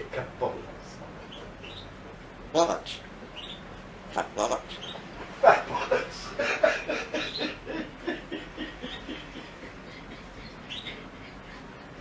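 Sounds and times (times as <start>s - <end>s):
soft chuckling laughter: 5.4s - 12.0s.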